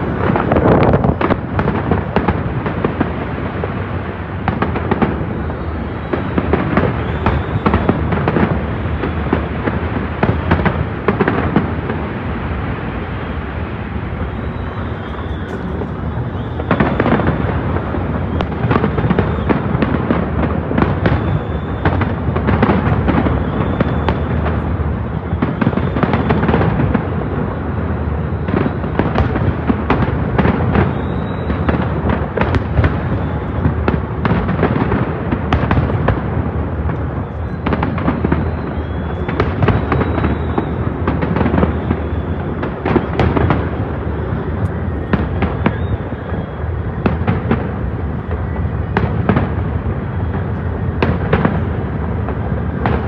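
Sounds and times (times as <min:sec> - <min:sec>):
fireworks bangs and crackles: 0:00.0 - 0:53.0
low rumble: 0:13.4 - 0:19.3.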